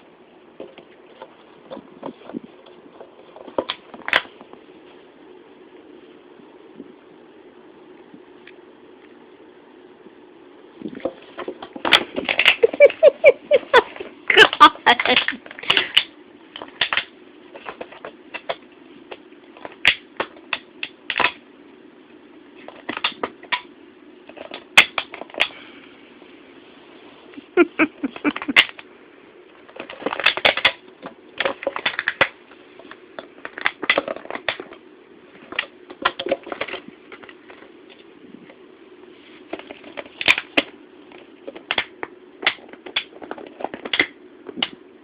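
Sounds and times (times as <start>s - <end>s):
plastic bottle crackling: 29.7s - 34.8s.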